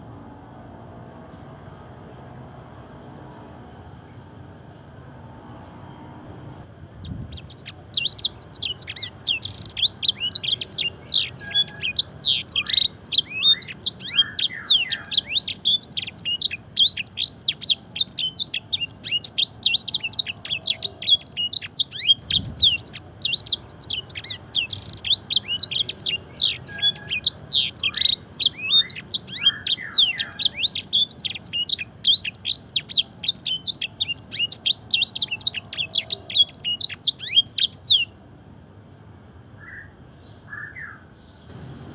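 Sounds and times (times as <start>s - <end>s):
canary singing: 7.0s - 38.2s, 39.6s - 41.6s.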